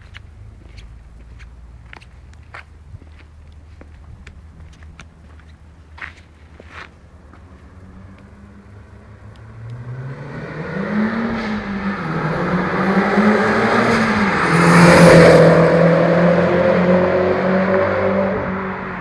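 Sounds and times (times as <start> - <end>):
car engine revving: 8.4 - 19.0.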